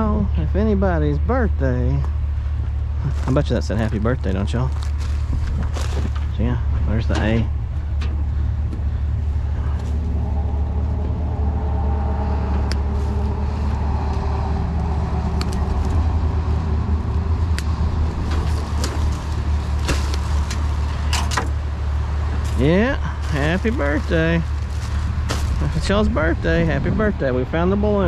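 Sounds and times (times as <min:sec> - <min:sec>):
engine idling: 0:00.0 - 0:28.0
rustling: 0:03.0 - 0:06.4, 0:18.0 - 0:21.6, 0:22.3 - 0:25.9.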